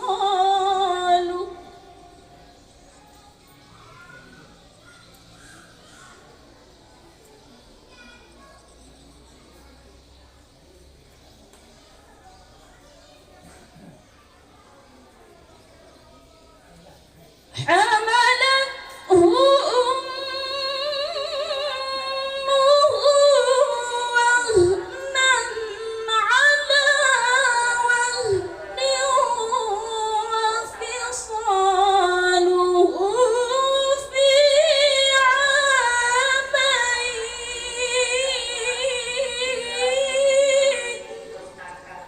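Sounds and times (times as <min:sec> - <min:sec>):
woman reciting melodically: 0:00.0 - 0:02.9, 0:17.5 - 0:41.9.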